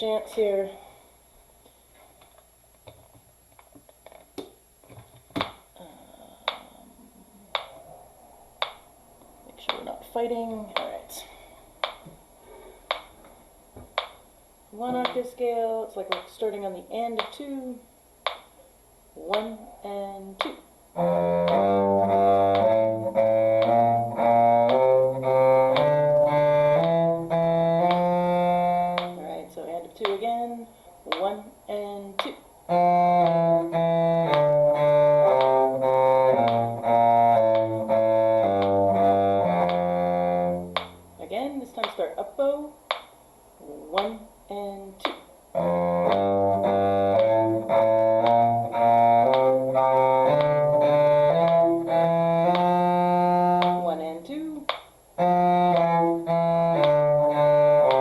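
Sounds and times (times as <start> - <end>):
cello playing a scale: 20.4 - 30.4, 31.1 - 41.4, 45.0 - 54.4, 55.2 - 58.0.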